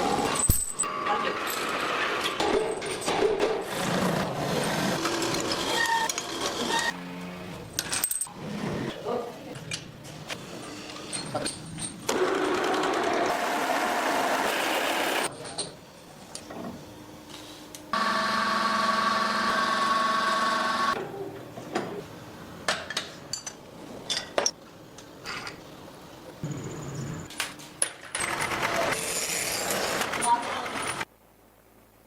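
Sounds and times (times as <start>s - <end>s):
motor hum with whine: 16.0s - 22.6s.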